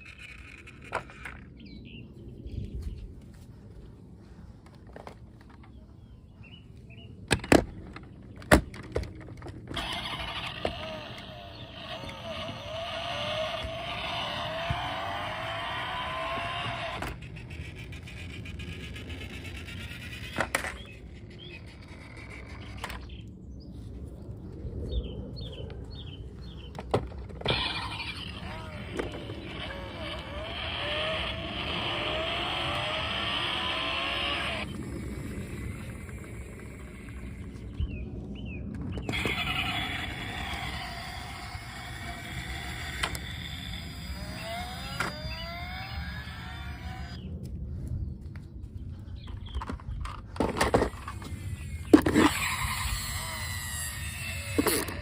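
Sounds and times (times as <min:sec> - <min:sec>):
small electric motor whirring: 0:08.7 - 0:23.2, 0:27.2 - 0:37.8, 0:39.0 - 0:47.3, 0:50.1 - 0:55.0.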